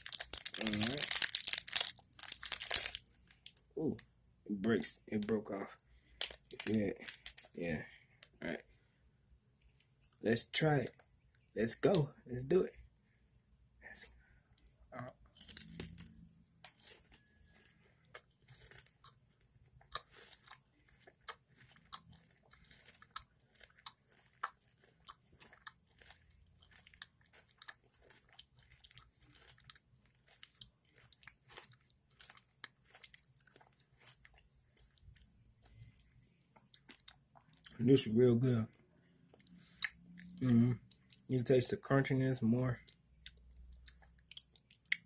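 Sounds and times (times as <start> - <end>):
crisp crunching: 0.0 - 3.6, 6.2 - 7.7, 15.3 - 35.8.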